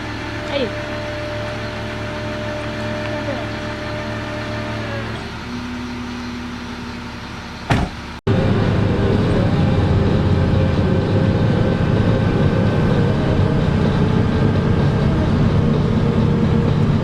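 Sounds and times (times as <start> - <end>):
vehicle interior rumble: 0.0 - 17.0.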